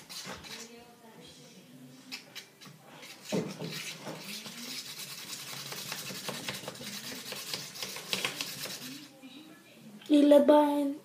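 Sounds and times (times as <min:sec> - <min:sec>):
utensil stirring thick slime: 0:00.0 - 0:00.8, 0:02.1 - 0:09.2.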